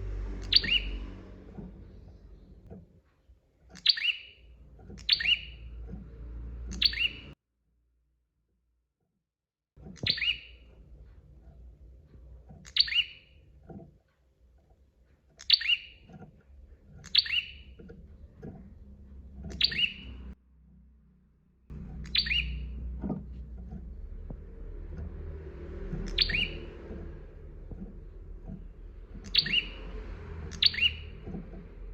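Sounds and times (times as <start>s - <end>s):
low background rumble: 0.0s - 3.7s, 9.8s - 31.9s
bird sharp chirps: 0.4s - 2.6s, 3.8s - 5.8s, 6.7s - 7.4s, 10.0s - 10.7s, 12.6s - 13.4s, 15.4s - 16.1s, 17.0s - 17.9s, 19.4s - 20.4s, 21.9s - 22.8s, 25.9s - 27.0s, 27.7s - 31.6s.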